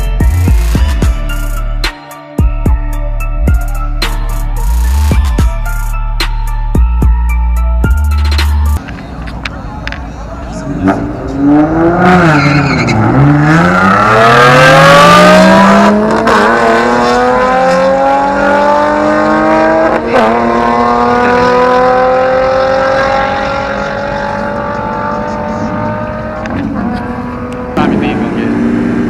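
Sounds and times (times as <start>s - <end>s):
truck engine accelerating: 8.2s - 29.0s.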